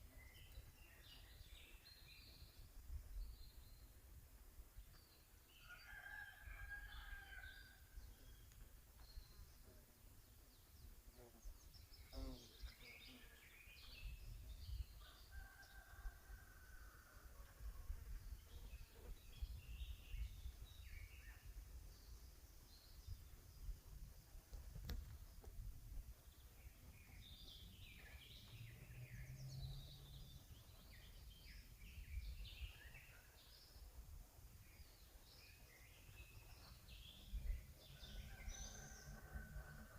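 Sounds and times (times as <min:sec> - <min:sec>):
songbirds chirping: 0:00.0 - 0:39.9
distant rooster crowing: 0:05.5 - 0:08.0, 0:15.0 - 0:17.6, 0:37.8 - 0:39.9
wind rumble on microphone: 0:13.9 - 0:39.9.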